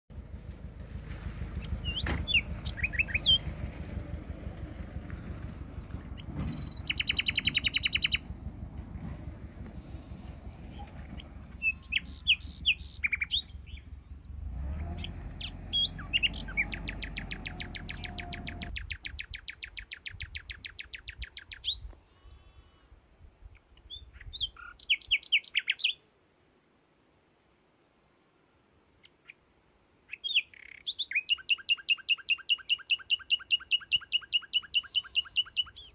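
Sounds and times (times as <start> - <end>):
low rumble: 0.1 - 19.4
songbirds trilling and chirping: 1.4 - 8.8, 9.4 - 26.0, 27.9 - 28.4, 29.0 - 35.9.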